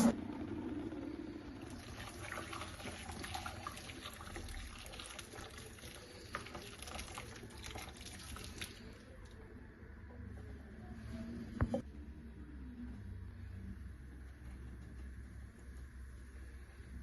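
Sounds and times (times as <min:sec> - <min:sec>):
water trickling and splashing: 0:01.8 - 0:09.0.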